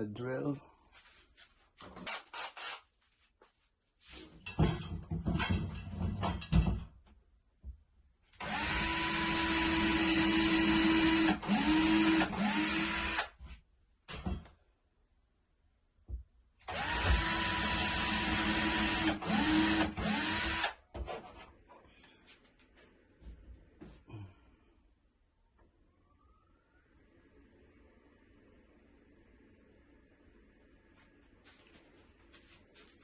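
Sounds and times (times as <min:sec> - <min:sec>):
power drill whining: 0:01.9 - 0:02.9, 0:08.4 - 0:13.4, 0:16.6 - 0:20.8.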